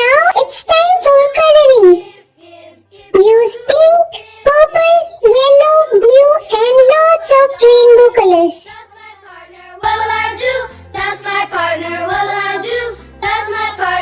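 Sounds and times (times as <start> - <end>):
child-like singing voice: 0.0 - 2.1, 3.1 - 8.8.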